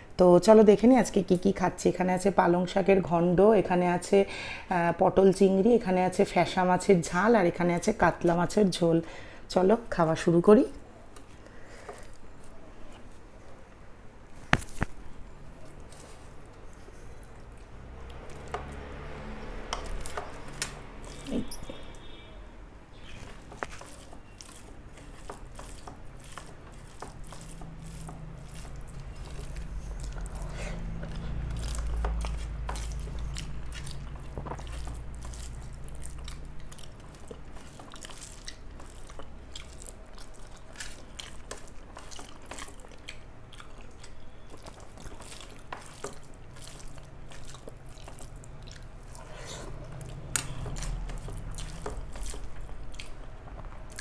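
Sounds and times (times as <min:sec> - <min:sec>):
person chewing with wet clicks: 0:11.1 - 0:13.2, 0:14.7 - 0:22.2, 0:22.9 - 0:54.0.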